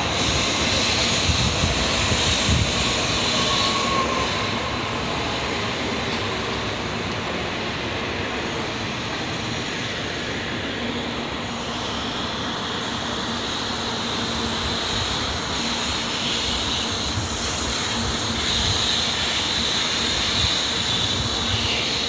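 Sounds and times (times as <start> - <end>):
high train whine: 0.0 - 22.0
train motors and wheels running: 0.0 - 22.0.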